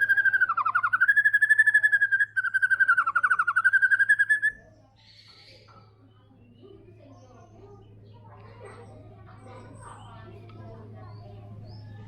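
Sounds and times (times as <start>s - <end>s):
bird singing rattling trill: 0.0s - 5.6s.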